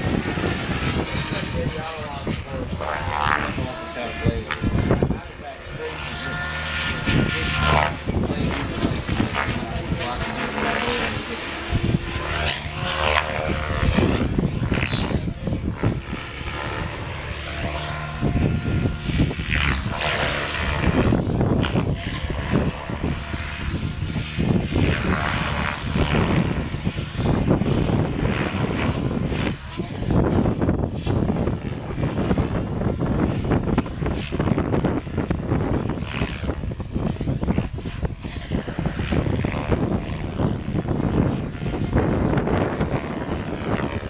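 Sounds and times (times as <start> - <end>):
model aircraft motor whine: 0.0 - 44.0
wind buffeting microphone: 0.0 - 44.0.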